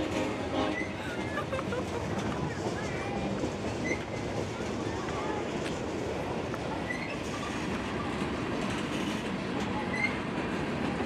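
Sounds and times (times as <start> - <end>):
freight train wheels on rails: 0.0 - 11.0.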